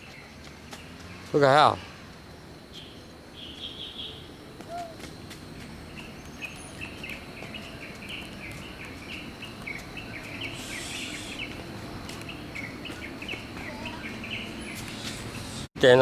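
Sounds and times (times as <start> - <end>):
chorus of high chirps: 5.9 - 15.7.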